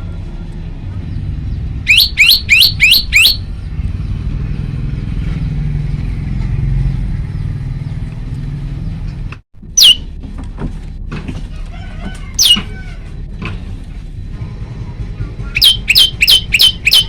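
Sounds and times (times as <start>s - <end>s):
low rumble: 0.0s - 16.9s
bird calling sharp notes: 1.8s - 3.5s, 9.6s - 10.1s, 12.4s - 12.8s, 15.4s - 17.0s.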